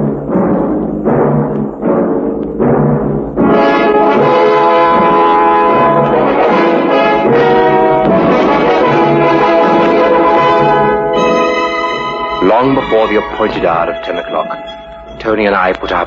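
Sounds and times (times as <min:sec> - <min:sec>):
timpani strokes: 0:00.0 - 0:16.0
brass-led orchestra chords: 0:03.2 - 0:16.0.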